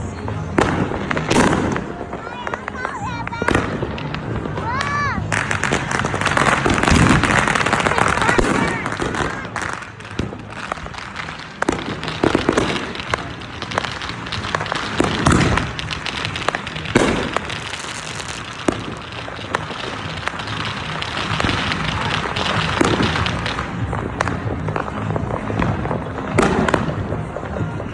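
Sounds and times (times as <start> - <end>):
fireworks booming: 0.0 - 27.9
fireworks crackling: 0.0 - 27.9.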